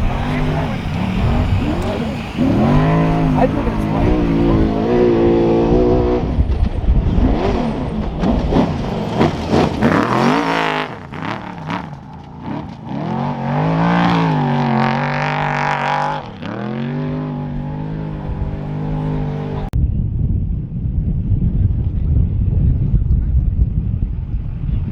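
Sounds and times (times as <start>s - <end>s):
truck engine revving: 0.0s - 6.4s, 7.0s - 19.8s.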